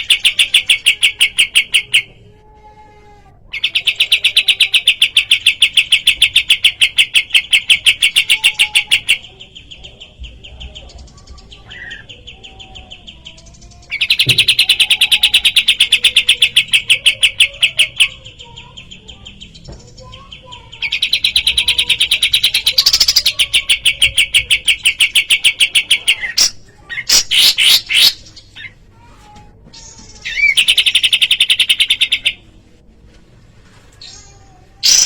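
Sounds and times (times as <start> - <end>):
bulbul singing rattling trills: 3.6 - 26.4.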